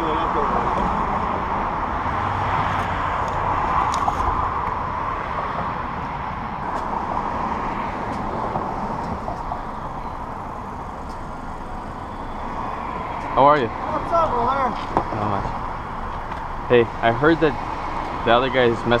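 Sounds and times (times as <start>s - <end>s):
vehicle road and engine noise: 0.0s - 19.0s.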